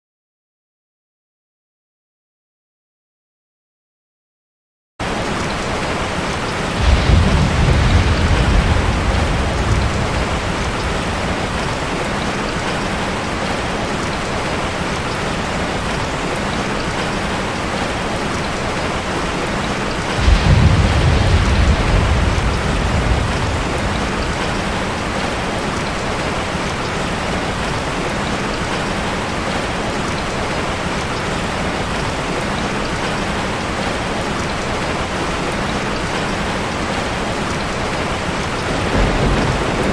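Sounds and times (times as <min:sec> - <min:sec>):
rushing water: 0:05.0 - 0:39.9
deep rumbles: 0:06.8 - 0:12.1, 0:20.2 - 0:25.5.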